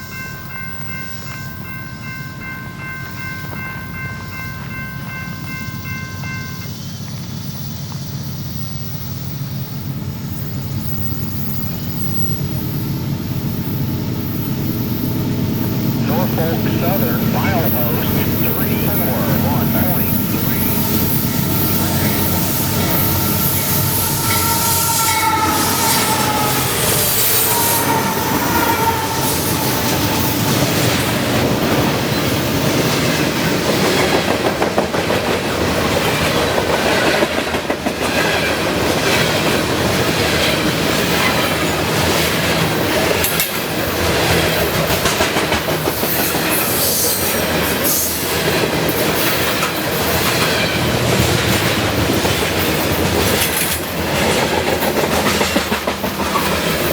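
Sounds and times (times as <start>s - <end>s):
train wheels clattering over rails: 10.1s - 56.9s
high-pitched tone: 16.1s - 31.2s.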